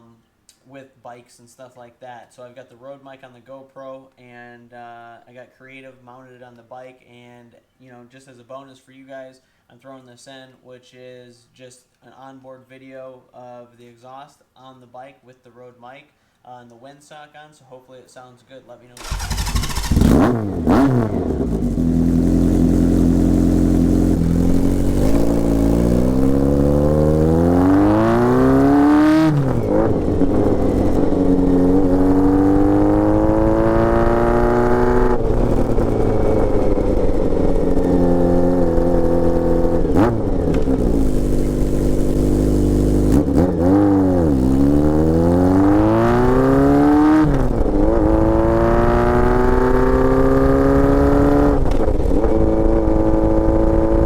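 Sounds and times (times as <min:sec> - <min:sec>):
motorcycle engine accelerating: 0:19.0 - 0:54.0.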